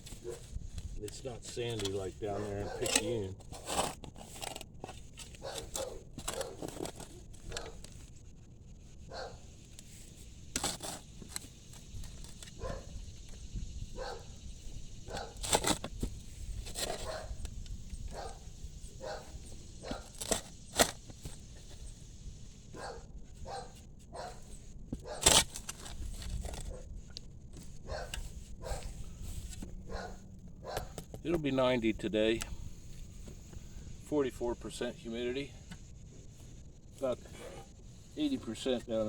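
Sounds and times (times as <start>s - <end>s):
shovel digging into soil: 0.0s - 8.0s, 9.7s - 12.7s, 14.6s - 17.6s, 19.2s - 21.8s, 23.6s - 26.8s.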